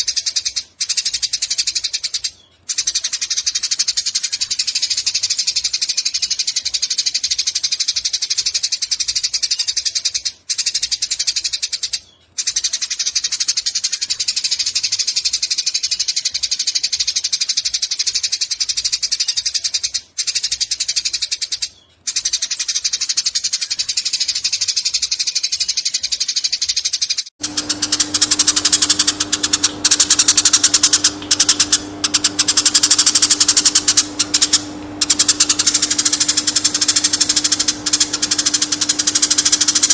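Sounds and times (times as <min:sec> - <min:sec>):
sparrows chattering: 0:00.0 - 0:39.9
steady low hum: 0:27.4 - 0:39.9.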